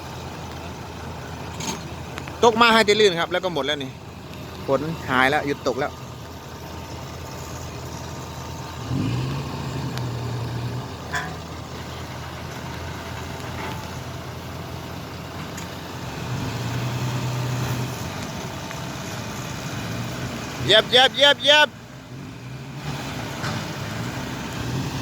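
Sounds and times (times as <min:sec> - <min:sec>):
car engine revving: 0:07.7 - 0:12.1.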